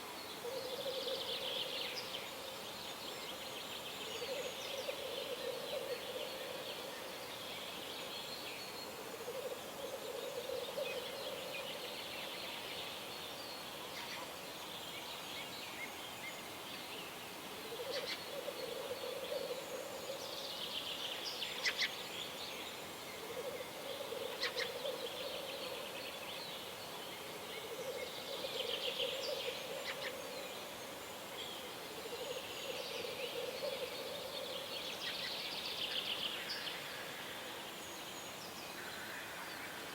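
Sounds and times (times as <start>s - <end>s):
songbird song: 0.0s - 39.9s.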